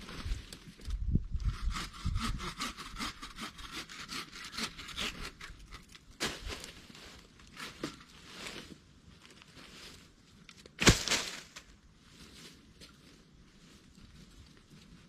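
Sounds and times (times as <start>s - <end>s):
hand saw cutting wood: 1.4s - 5.8s.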